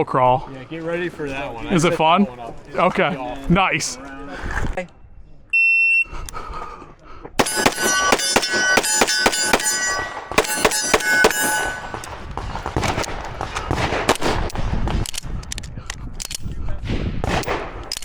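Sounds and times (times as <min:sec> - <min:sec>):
steel plate ringing: 0:07.4 - 0:12.2
gunshots: 0:07.4 - 0:15.4, 0:16.9 - 0:18.0.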